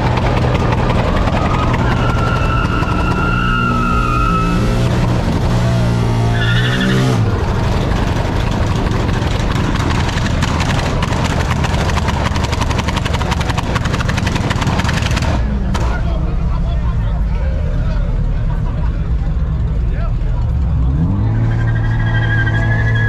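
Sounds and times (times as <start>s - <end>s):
car engine revving hard: 0.0s - 15.5s
loud vehicle noise: 0.0s - 23.0s.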